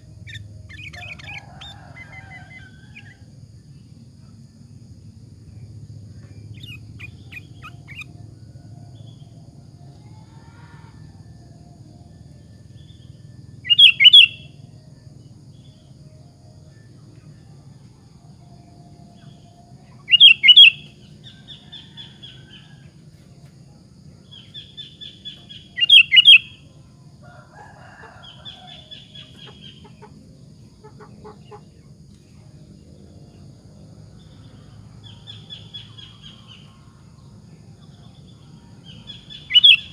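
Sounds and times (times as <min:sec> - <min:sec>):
bird singing: 0:00.0 - 0:39.9
steady low hum: 0:00.0 - 0:39.9
soft chattering bird calls: 0:06.2 - 0:08.1, 0:29.0 - 0:30.2, 0:30.8 - 0:31.8.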